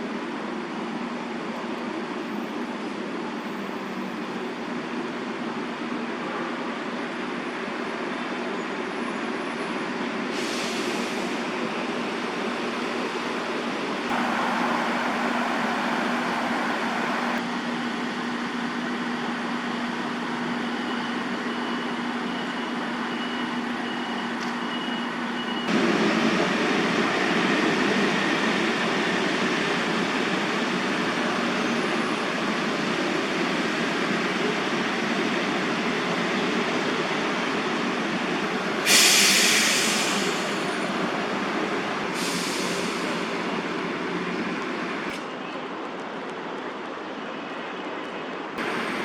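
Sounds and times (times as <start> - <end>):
sudden loud hiss: 14.1 - 21.6, 48.6 - 49.0
low hum: 14.1 - 23.2
city traffic noise: 14.1 - 34.3, 35.2 - 49.0.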